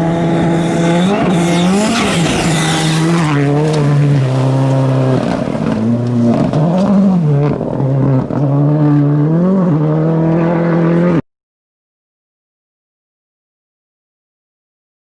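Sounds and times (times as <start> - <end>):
rally car engine revving: 0.0 - 11.2.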